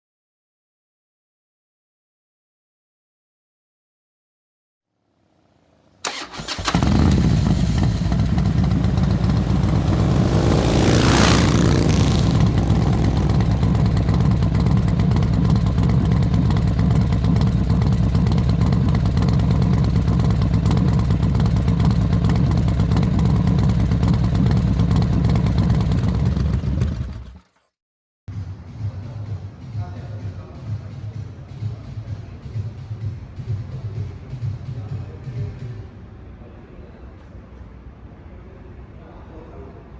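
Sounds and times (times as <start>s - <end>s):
motorcycle engine starting and idling: 6.0s - 27.7s.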